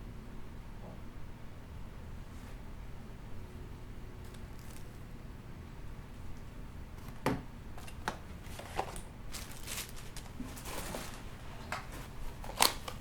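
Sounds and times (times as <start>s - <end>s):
packaging rustling: 7.8s - 13.0s.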